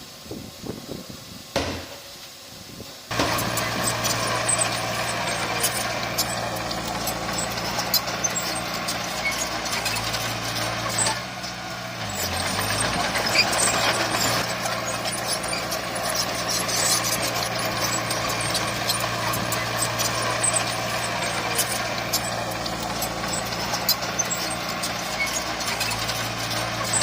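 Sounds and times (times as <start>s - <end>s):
diesel machinery running: 3.1s - 27.0s.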